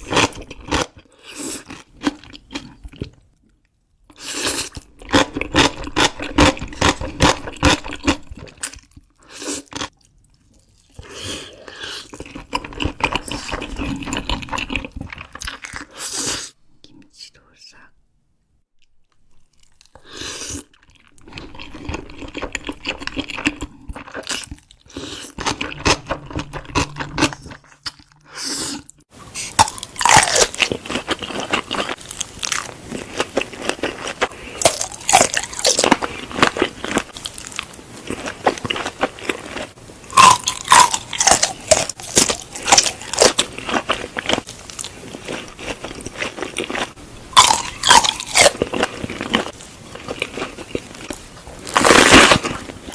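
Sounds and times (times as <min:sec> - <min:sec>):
crunchy food chewing: 0:00.0 - 0:16.6, 0:18.8 - 0:52.9.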